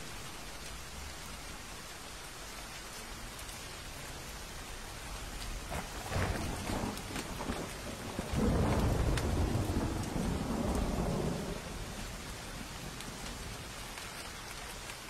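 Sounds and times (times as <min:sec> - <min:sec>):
steady rain: 0:00.0 - 0:15.0
thunder rumbling: 0:05.6 - 0:13.8.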